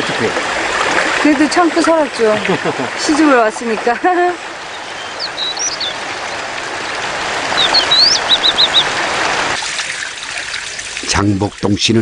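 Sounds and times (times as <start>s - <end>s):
running water rushing: 0.0s - 12.0s
songbird calling: 4.3s - 9.5s.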